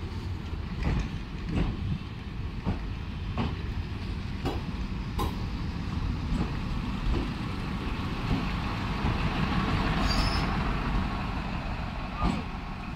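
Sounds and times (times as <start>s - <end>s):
train rolling past: 0.0s - 12.9s.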